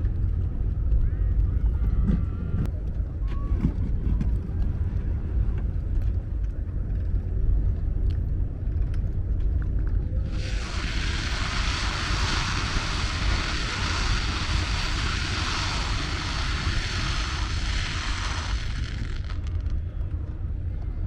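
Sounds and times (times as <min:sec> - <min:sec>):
low rumble: 0:00.0 - 0:21.0
fireworks crackling: 0:10.3 - 0:19.8.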